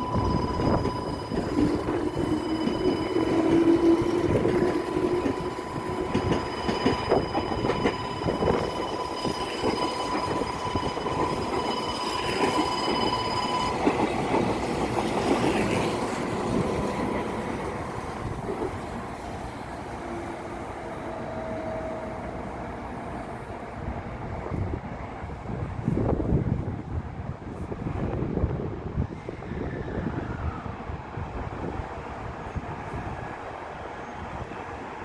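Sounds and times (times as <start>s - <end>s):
steady high tone: 0.0s - 18.4s
train motor whine: 0.0s - 18.6s
train wheels clattering over rails: 0.0s - 18.9s.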